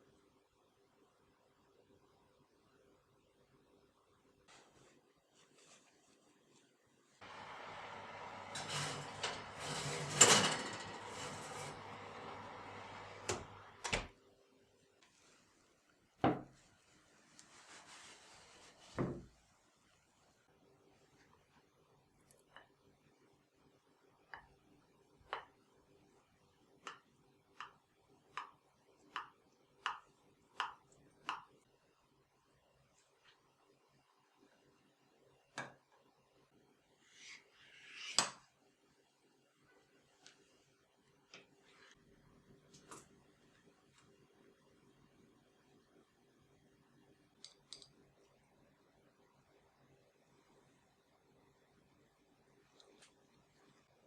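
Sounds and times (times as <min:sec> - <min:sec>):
sliding and scraping: 0:07.2 - 0:13.8.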